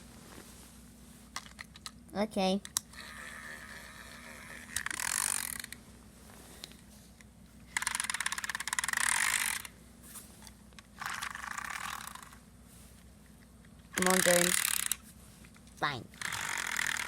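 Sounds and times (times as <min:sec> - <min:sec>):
toy train clicking and whirring: 0:02.9 - 0:05.8, 0:07.7 - 0:09.7, 0:11.0 - 0:12.4, 0:13.9 - 0:15.0, 0:16.2 - 0:17.0.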